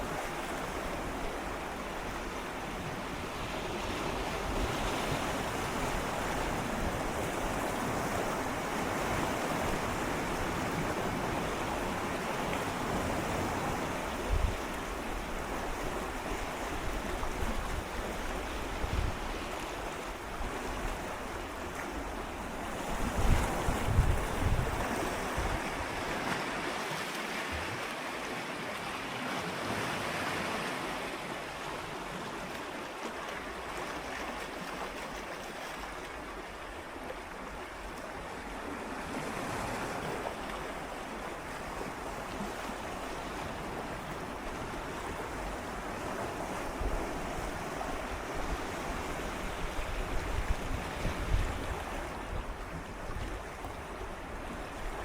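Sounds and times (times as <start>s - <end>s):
sea waves lapping against rocks: 0.0s - 55.0s
low wind rumble on microphone: 12.8s - 26.1s, 44.6s - 55.0s.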